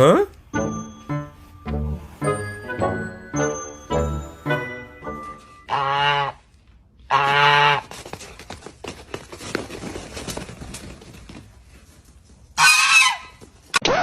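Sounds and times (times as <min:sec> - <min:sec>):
loud honk: 0:05.7 - 0:06.4, 0:07.1 - 0:07.8, 0:12.6 - 0:14.0
rustling and clatter: 0:07.8 - 0:12.6.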